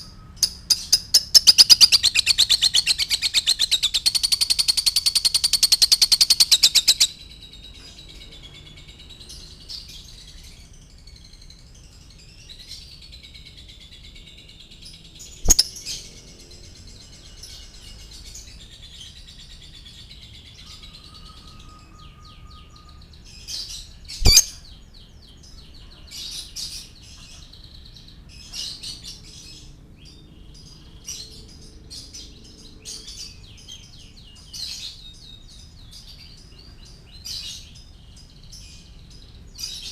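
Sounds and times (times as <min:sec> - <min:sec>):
lovebird chirping: 0:00.0 - 0:07.7, 0:15.2 - 0:16.1, 0:20.6 - 0:24.7.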